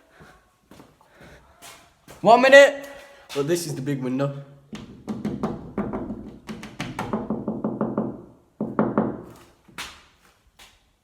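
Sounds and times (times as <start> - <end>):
hollow knocks and thuds: 4.7 - 9.4.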